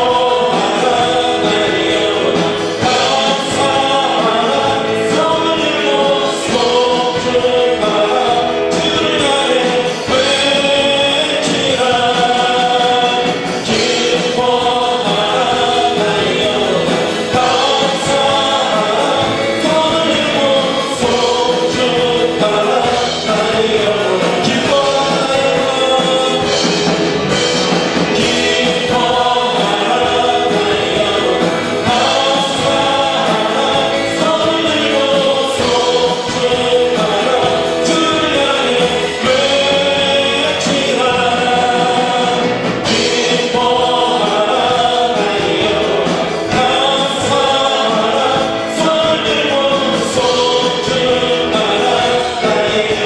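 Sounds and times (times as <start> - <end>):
group singing a hymn: 0.0 - 53.0
instrumental accompaniment: 0.0 - 53.0.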